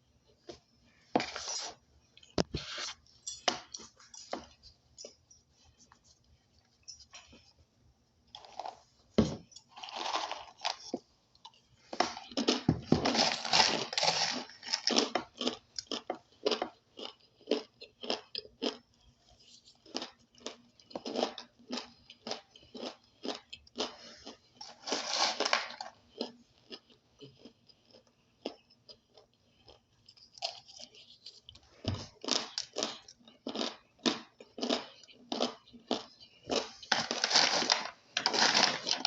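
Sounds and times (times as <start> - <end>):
person crunching food: 9.7 - 39.0.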